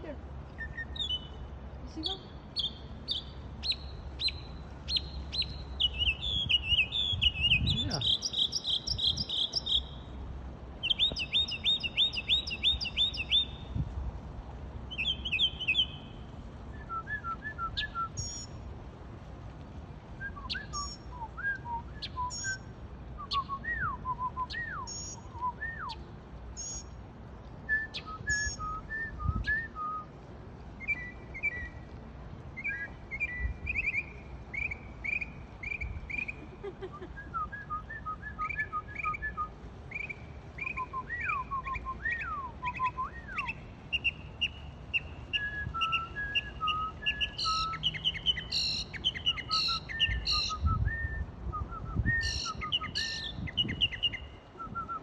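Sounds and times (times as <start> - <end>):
songbird singing trills and whistles: 0.5 - 10.2, 10.8 - 13.8, 14.9 - 18.6, 20.2 - 27.0, 27.7 - 30.2, 30.8 - 31.9, 32.5 - 55.0.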